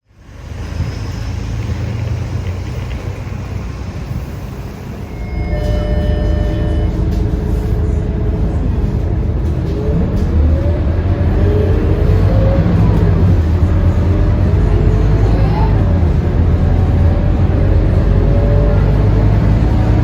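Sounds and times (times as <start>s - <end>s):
bus diesel engine accelerating: 0.0s - 20.0s
short electronic tone: 5.0s - 7.0s.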